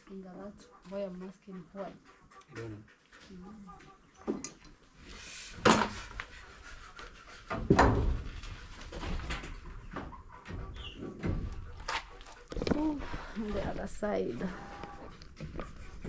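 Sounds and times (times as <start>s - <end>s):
knocks and clattering bumps: 7.4s - 13.0s.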